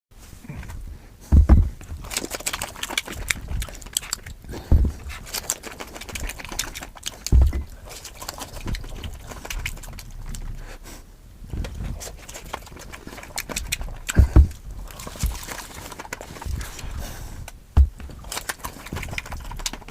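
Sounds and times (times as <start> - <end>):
heavy low thumps: 1.3 - 1.9, 4.4 - 5.1, 7.3 - 7.9, 14.0 - 14.9, 16.8 - 18.1
wet mouth clicks and chewing: 1.8 - 10.7, 11.6 - 19.9.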